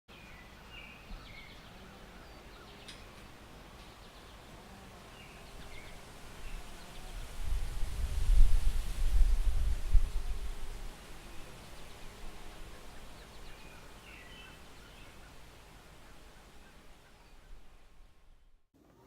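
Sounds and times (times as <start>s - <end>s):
birds chirping: 0.1s - 7.3s, 11.1s - 18.6s
wind buffeting microphone: 5.7s - 11.4s.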